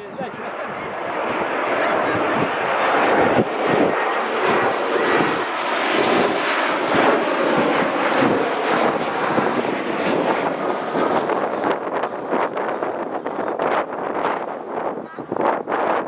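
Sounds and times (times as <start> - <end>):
high engine whine: 0.0 - 12.6
jet airliner engines roaring: 0.0 - 16.0.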